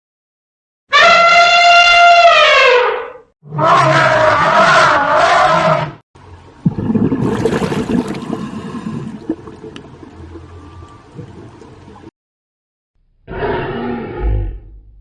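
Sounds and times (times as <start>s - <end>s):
loud animal call: 0.9s - 6.0s, 13.3s - 14.7s.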